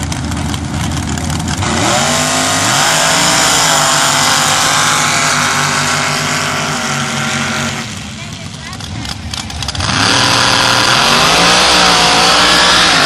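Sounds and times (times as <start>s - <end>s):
truck engines at full throttle: 0.0s - 13.0s.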